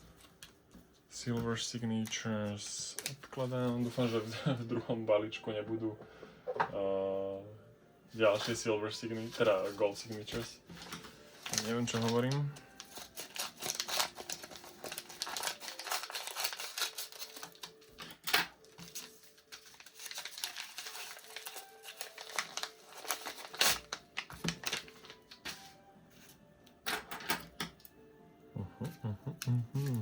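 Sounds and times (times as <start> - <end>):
faint background music: 0.0 - 30.0
plastic packaging crinkling: 8.2 - 25.8.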